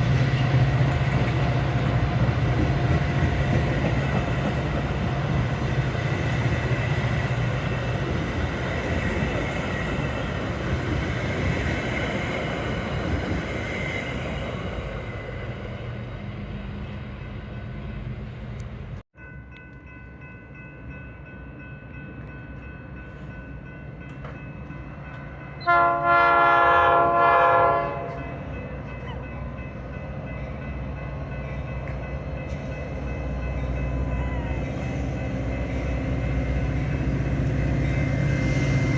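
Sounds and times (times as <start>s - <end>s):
train rumbling on rails: 0.0s - 38.9s
locomotive chime horn: 25.1s - 38.9s.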